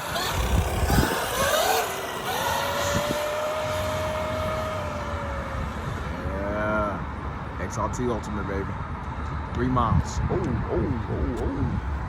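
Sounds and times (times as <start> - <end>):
rc truck electric motor whining: 0.0 - 7.6
tyres rumbling on road: 0.0 - 12.0.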